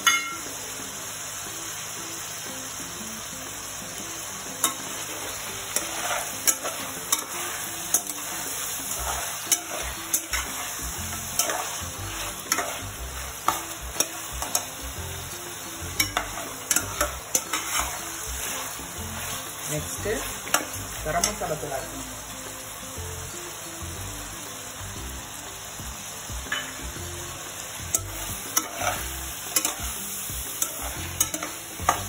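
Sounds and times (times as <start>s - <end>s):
chicken sizzling in oil: 0.0s - 32.0s
spatula clicking and scraping pan: 4.6s - 21.5s, 27.9s - 32.0s.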